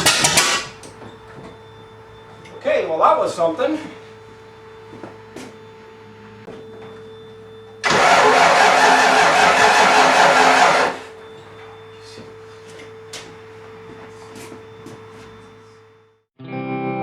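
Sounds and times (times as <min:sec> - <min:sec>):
car engine cranking and firing: 0:00.0 - 0:00.8, 0:07.8 - 0:11.2.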